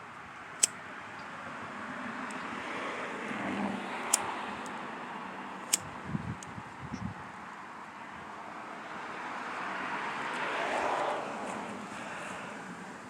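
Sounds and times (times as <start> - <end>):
passing vehicle road noise: 0.0 - 13.0
sharp clicks: 5.7 - 6.5.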